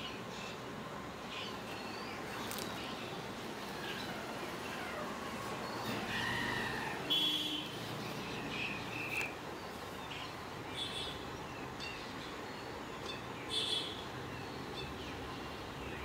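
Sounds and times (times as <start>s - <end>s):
birds chirping: 0.0s - 16.0s
low background hiss: 0.0s - 16.0s.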